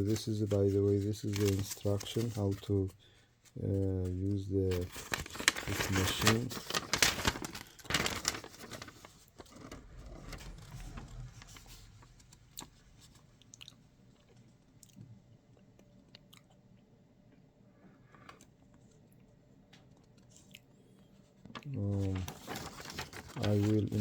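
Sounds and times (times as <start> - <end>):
soft rustling: 0.0 - 13.4.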